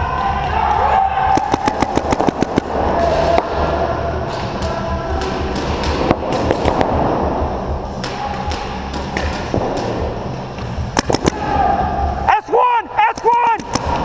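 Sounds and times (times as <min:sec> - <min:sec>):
paintball markers firing: 0:01.3 - 0:03.5, 0:10.9 - 0:11.4, 0:13.1 - 0:14.0
steady low rumble: 0:01.4 - 0:12.3.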